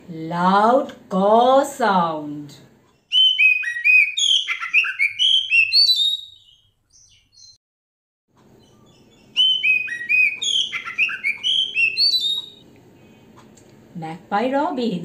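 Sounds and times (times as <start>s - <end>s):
songbird whistling song: 3.0s - 7.6s, 8.6s - 13.2s.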